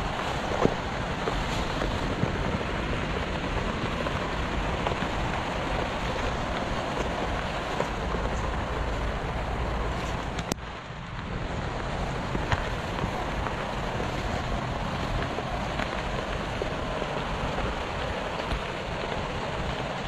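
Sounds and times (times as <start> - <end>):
rain hissing: 0.0 - 20.0
wind buffeting microphone: 0.0 - 20.0.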